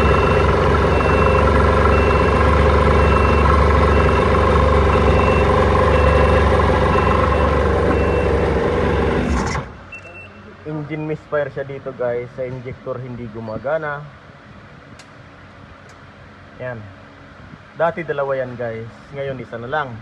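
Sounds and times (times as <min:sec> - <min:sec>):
short high beeps: 0:09.9 - 0:10.4.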